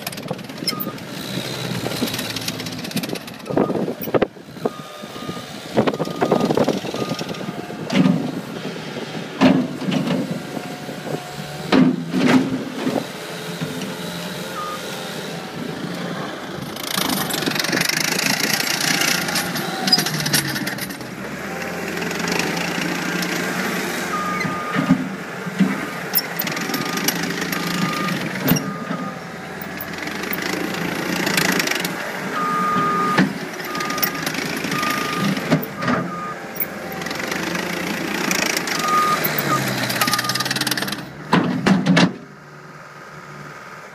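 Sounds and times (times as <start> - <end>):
diesel engine revving: 0.0 - 43.9
metal clanks and knocks: 40.9 - 42.3.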